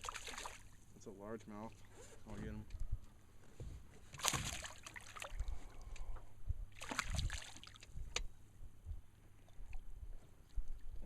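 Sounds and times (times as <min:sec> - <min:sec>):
fish splashing at surface: 0:04.2 - 0:05.4, 0:06.8 - 0:07.9.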